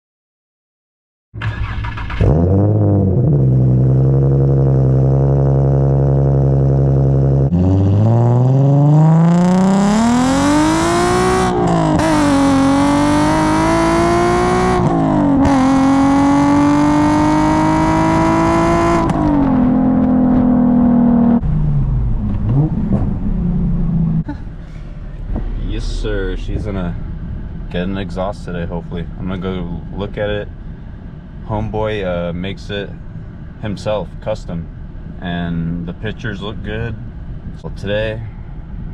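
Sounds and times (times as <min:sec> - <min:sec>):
car engine accelerating: 0:01.4 - 0:32.0.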